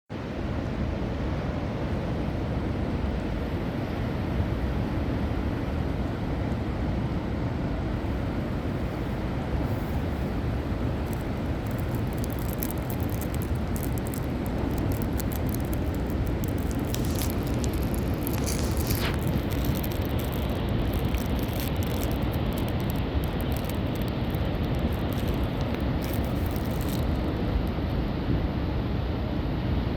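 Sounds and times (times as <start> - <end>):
wind buffeting microphone: 2.7 - 28.1
crackling hiss: 7.8 - 28.0.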